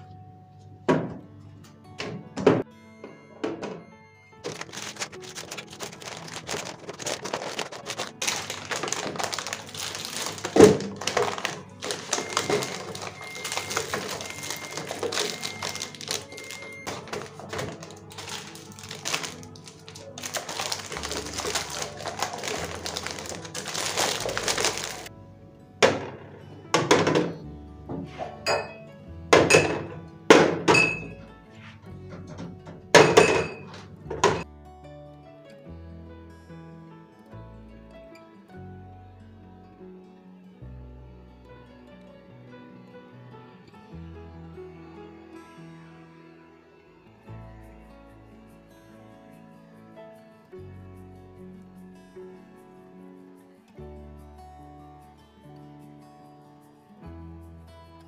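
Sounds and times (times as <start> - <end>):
soft background music: 0.0 - 58.0
containers being handled: 4.4 - 25.1, 29.4 - 34.4.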